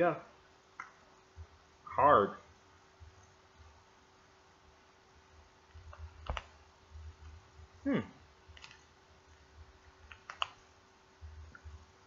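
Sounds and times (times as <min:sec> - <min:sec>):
scattered clicks: 0:08.5 - 0:08.9, 0:10.0 - 0:10.6.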